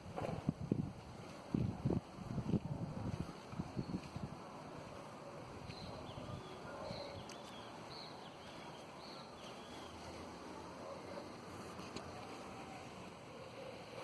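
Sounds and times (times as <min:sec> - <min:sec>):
bird chirps: 0:05.7 - 0:10.2.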